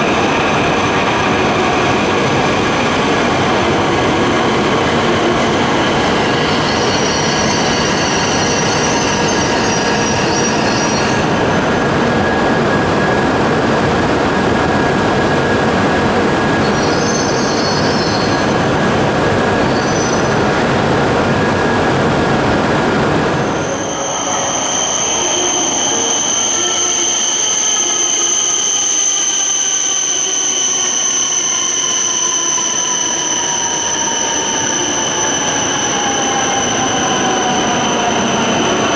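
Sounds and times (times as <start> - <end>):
train rolling noise: 0.0 - 38.9
train wheel squeals: 4.7 - 12.4, 16.3 - 18.9, 19.5 - 20.5, 23.5 - 38.9.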